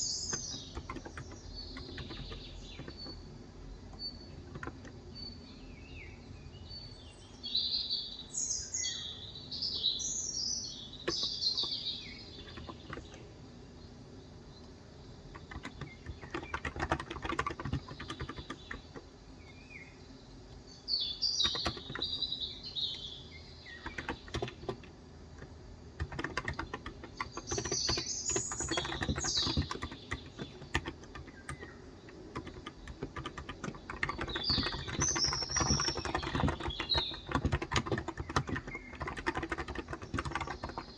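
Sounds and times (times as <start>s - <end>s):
keyboard typing: 0.0s - 5.0s, 11.0s - 13.3s, 15.3s - 19.1s, 21.4s - 22.3s, 23.7s - 40.9s
songbird chirping: 0.0s - 40.9s.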